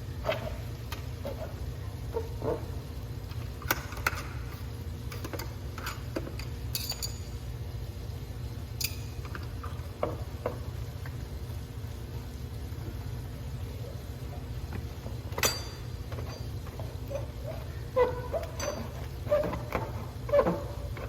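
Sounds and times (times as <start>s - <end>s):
steady low hum: 0.0s - 21.0s
metallic clinks of hand tools: 6.7s - 7.3s.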